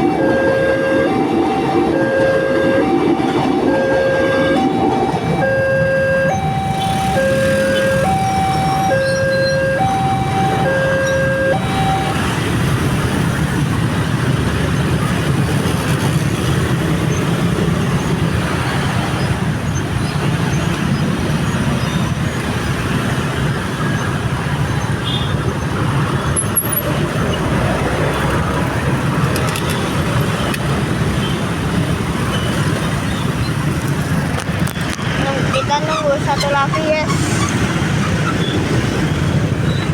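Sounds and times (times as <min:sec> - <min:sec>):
level crossing alarm two-tone: 0:00.0 - 0:12.5
passing vehicles rumbling: 0:00.0 - 0:39.9.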